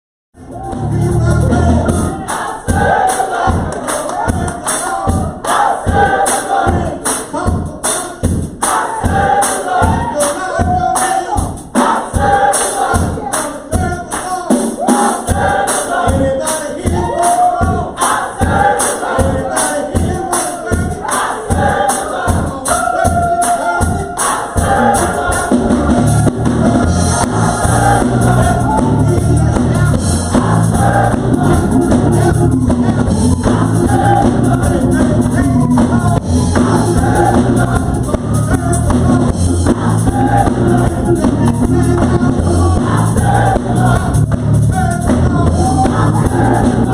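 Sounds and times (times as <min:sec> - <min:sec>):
low bass notes: 0:00.4 - 0:03.7, 0:24.6 - 0:46.9
gospel choir singing: 0:00.4 - 0:46.9
steady beat: 0:00.4 - 0:46.9.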